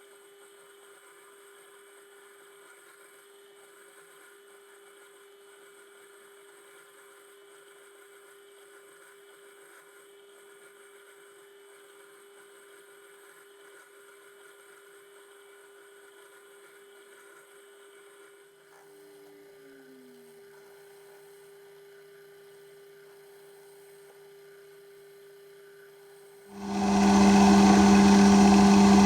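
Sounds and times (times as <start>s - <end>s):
metal lathe whining: 26.6s - 29.0s.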